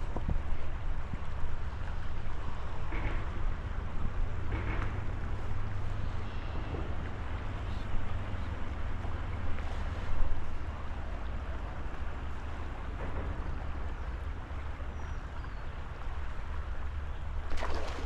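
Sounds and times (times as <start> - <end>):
flowing river water: 0.0 - 18.0
wind rumble on microphone: 0.0 - 18.0.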